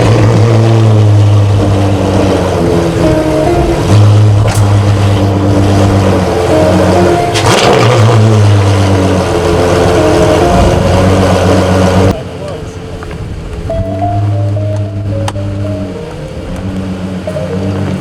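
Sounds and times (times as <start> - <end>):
car engine running loudly: 0.0 - 18.0
loud rush of noise: 0.0 - 18.0.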